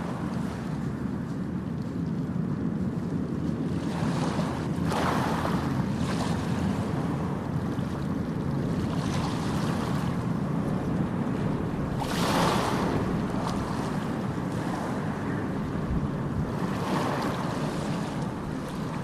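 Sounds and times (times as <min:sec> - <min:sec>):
ocean waves washing onto beach: 0:00.0 - 0:19.0
steady low rumble: 0:05.6 - 0:19.0.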